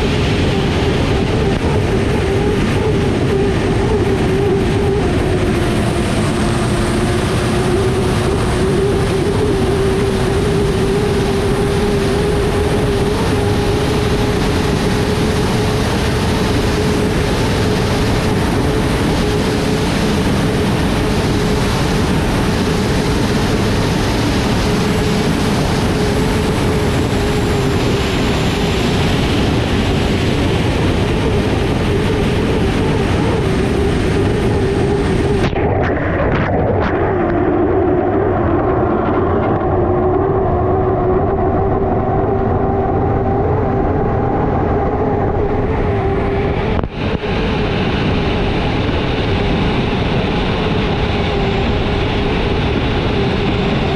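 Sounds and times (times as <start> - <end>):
loud rush of noise: 0.0 - 53.9
turbine engine tone: 0.0 - 53.9.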